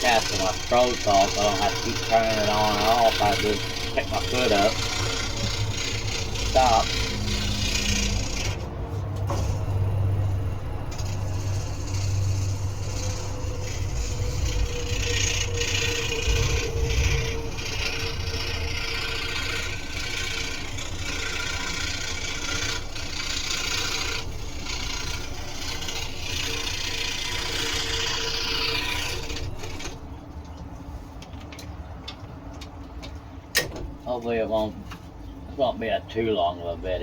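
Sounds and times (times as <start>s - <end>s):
saw blade cutting wood: 0.0s - 30.1s
scroll saw motor hum: 0.0s - 30.3s.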